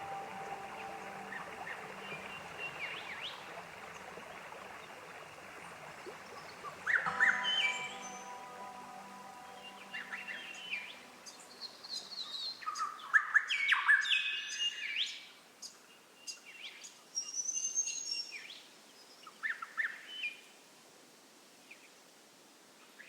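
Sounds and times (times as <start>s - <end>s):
faint hiss: 0.0s - 13.7s
songbirds singing: 0.0s - 18.5s.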